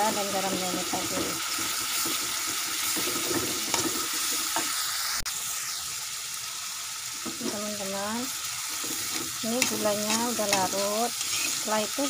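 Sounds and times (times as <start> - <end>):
food sizzling in a wok: 0.0 - 12.0
metal spatula stirring: 8.6 - 12.0.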